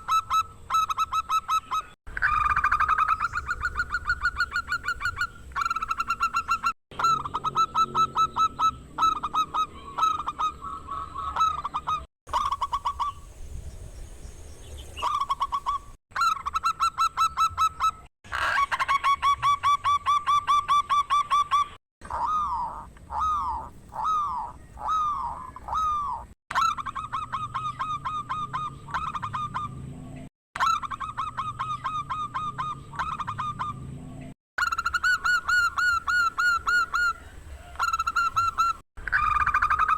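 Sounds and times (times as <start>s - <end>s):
dove cooing: 0.0s - 13.3s, 22.1s - 29.9s, 34.6s - 39.9s.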